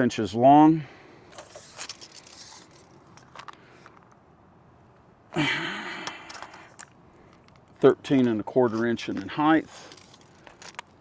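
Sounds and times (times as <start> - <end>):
light clicks and scrapes: 1.3 - 4.2, 6.1 - 11.0.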